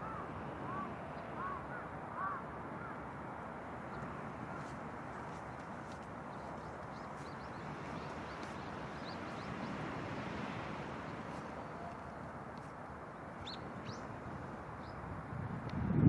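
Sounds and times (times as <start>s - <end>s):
surf washing onto beach: 2.1s - 15.6s
small birds chirping: 3.9s - 15.0s.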